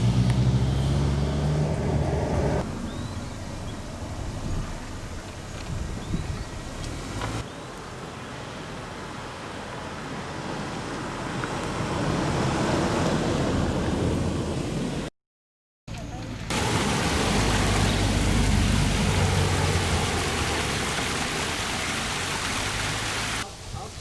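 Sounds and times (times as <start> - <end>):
stream water rushing: 16.5 - 23.5.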